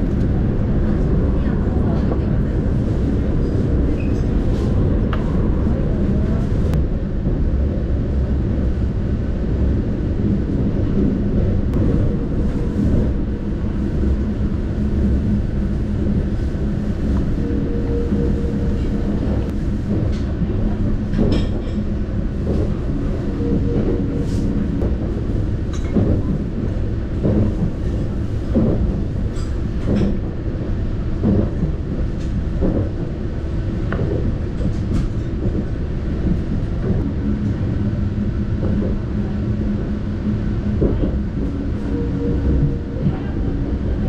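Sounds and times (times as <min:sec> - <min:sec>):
train interior rumble: 0:00.0 - 0:44.0
low hum: 0:06.7 - 0:29.5.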